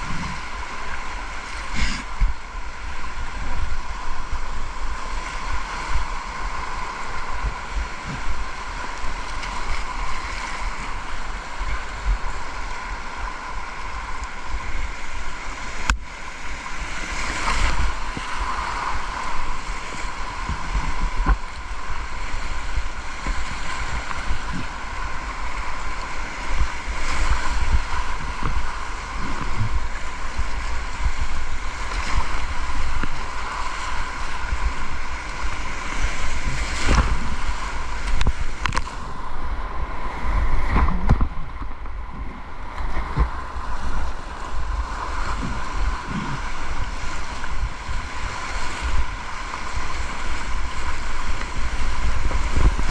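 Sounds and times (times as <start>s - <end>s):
wind buffeting microphone: 0.0s - 12.8s, 14.2s - 52.9s
rushing river water: 0.0s - 52.9s.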